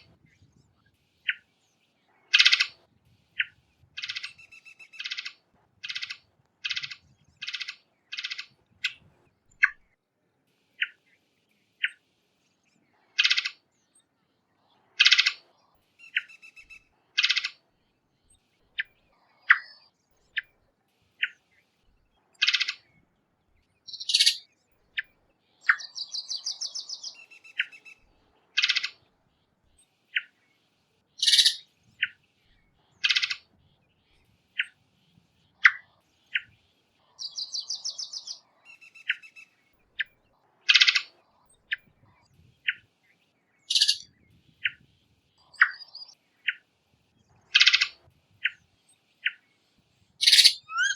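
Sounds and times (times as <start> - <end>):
thrush chip notes and calls: 31.2 - 31.7, 43.7 - 44.1, 50.2 - 50.9
buzzy trilled whistles: 50.2 - 50.9.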